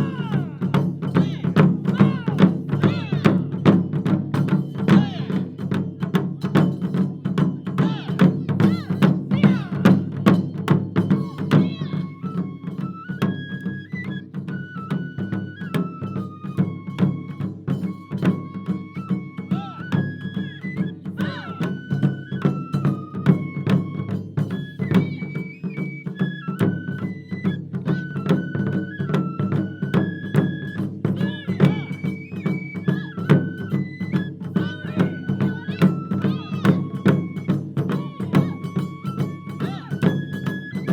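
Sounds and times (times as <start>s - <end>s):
drum ensemble playing fast rhythm: 0.0s - 12.3s, 30.7s - 40.9s.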